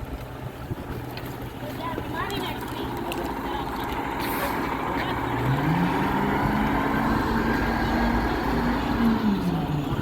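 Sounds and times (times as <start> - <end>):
garbage truck engine revving: 2.9 - 10.0.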